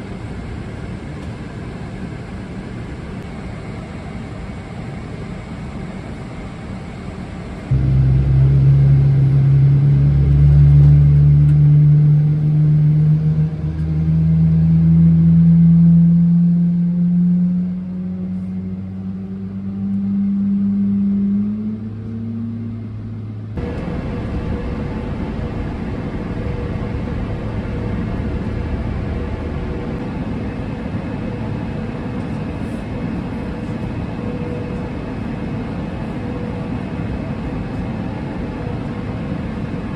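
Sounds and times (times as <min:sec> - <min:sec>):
cabin hum: 0:07.7 - 0:14.4
jet engine spooling up: 0:07.7 - 0:14.9, 0:23.6 - 0:36.8.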